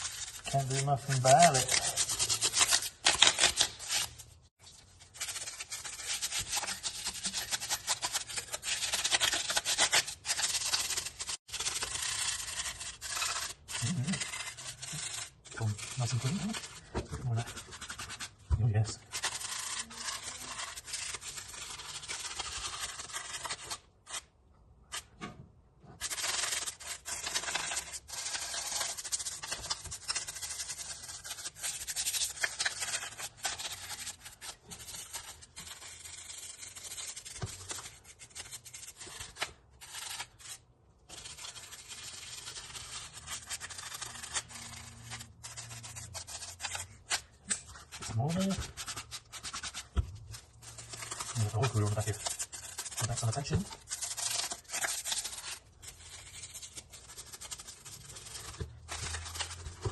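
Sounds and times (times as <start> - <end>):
stiff brush scrubbing grime: 0.0 - 24.2, 41.1 - 59.9.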